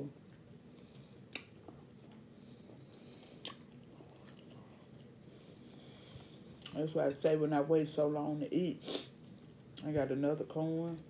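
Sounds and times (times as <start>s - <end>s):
person chewing food: 0.7s - 6.8s.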